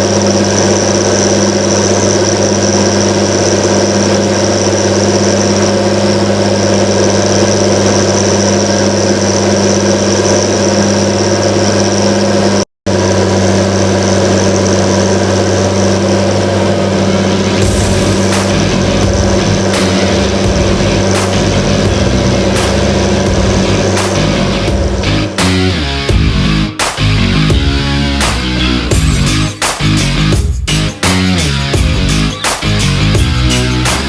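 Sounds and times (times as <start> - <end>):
high whine: 0.0 - 34.0
tractor diesel engine running: 0.0 - 34.0.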